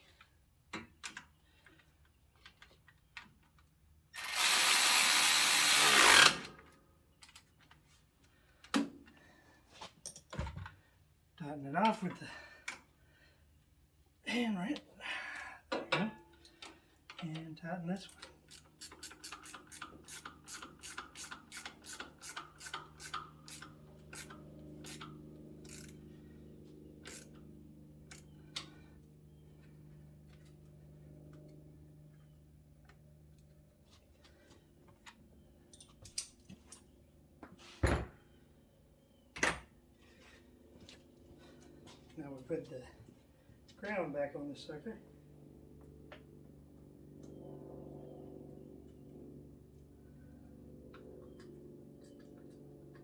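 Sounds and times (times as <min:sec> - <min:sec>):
power tool tightening bolt: 0:04.2 - 0:06.6, 0:18.5 - 0:26.0
ratchet wrench rasping: 0:18.5 - 0:26.0, 0:27.1 - 0:27.4.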